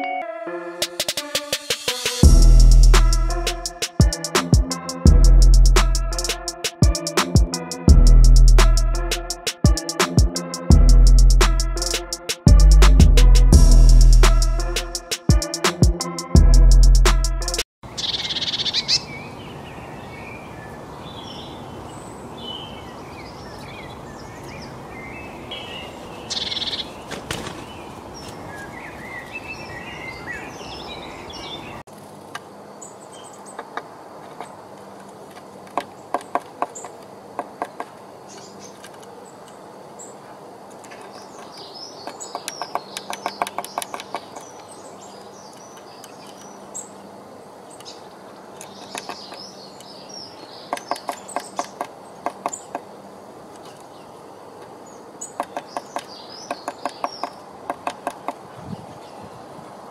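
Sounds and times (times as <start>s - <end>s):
outdoor background noise: 0.8s - 59.9s
songbirds chirping: 2.3s - 16.4s, 17.4s - 59.9s
bird pecking on wood: 35.3s - 38.0s, 40.8s - 44.6s, 50.7s - 52.8s, 55.4s - 58.4s.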